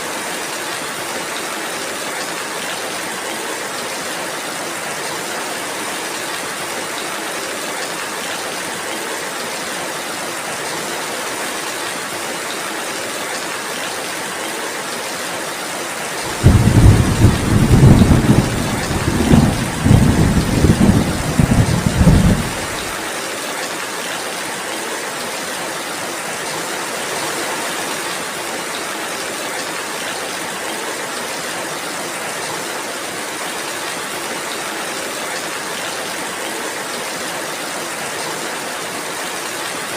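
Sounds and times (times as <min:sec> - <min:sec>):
steady rain: 0:00.0 - 0:39.9
rolling thunder: 0:16.3 - 0:23.0.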